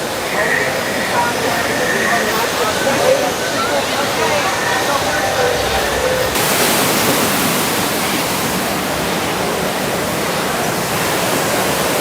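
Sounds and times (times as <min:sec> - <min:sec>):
loud rushing noise: 0:01.8 - 0:08.1.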